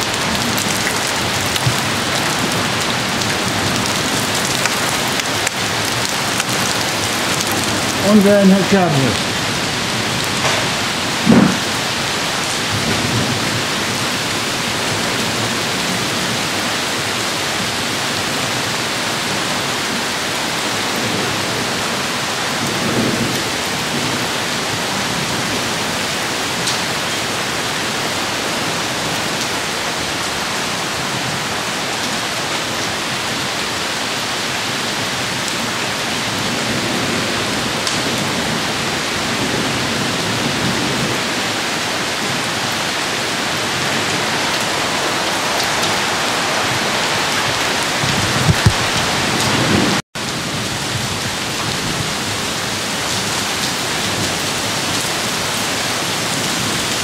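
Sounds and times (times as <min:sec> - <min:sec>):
heavy rain pouring: 0:00.0 - 0:57.0
thunder rumbling: 0:43.4 - 0:52.8.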